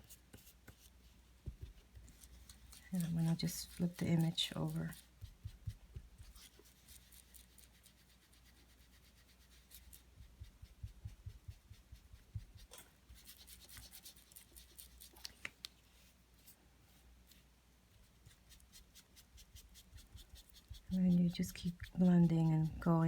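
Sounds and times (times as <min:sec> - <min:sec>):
soft taps: 0:01.4 - 0:01.8
ink blending tool rubbing cardstock: 0:19.1 - 0:23.0.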